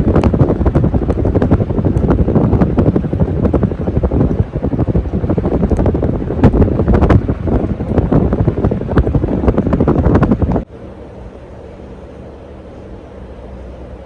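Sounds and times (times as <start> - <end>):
fan wind noise on microphone: 0.0 - 14.0.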